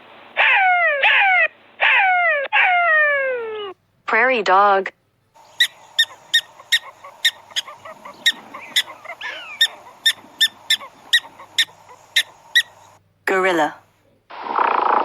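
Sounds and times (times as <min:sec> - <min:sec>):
prairie dog chirping alarm call: 0:00.4 - 0:03.8, 0:05.4 - 0:13.0.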